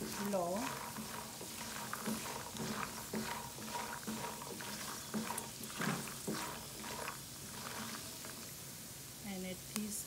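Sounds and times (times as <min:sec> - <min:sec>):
spatula stirring: 0:00.0 - 0:08.6
almonds sizzling in a pan: 0:00.0 - 0:09.9.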